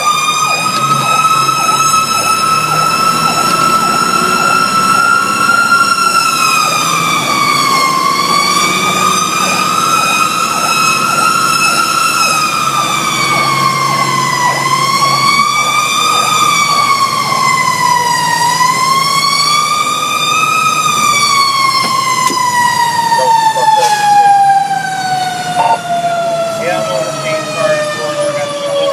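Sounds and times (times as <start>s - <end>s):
fire truck siren wailing: 0.0s - 28.9s
truck engine hum: 0.0s - 28.9s.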